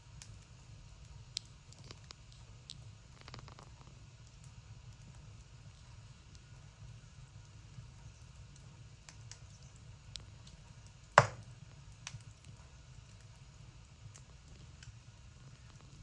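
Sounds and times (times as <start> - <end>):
sharp pops of fire: 11.2 - 11.4.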